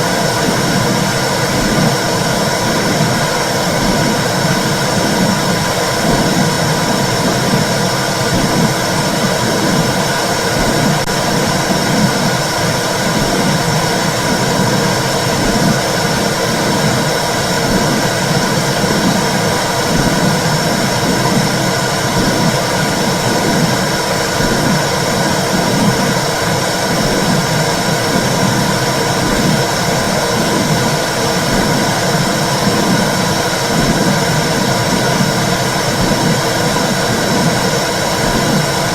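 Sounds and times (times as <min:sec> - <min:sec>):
slow pulsing beat: 0:00.0 - 0:38.9.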